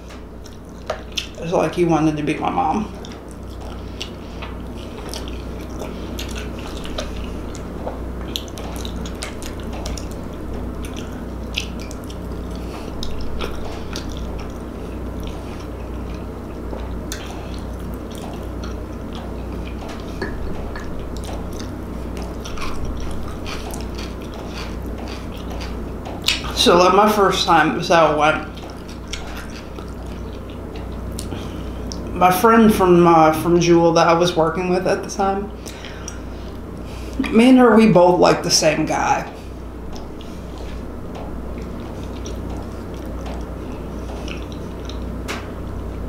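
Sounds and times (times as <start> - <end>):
low steady hum: 0.0 - 46.0
wet chewing smacks and clicks: 0.4 - 1.4, 2.9 - 26.6, 28.5 - 32.1, 35.6 - 36.9, 39.9 - 45.5.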